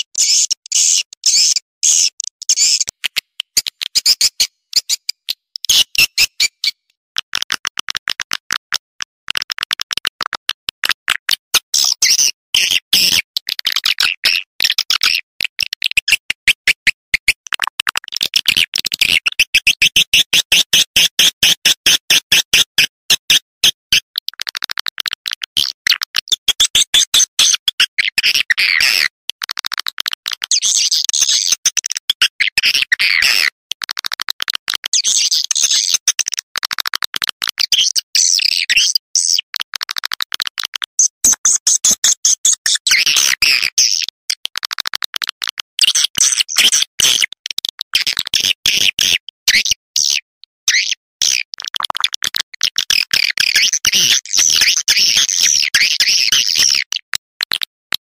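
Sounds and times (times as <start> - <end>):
swiftlets clicking and chirping: 0.2 - 8.8.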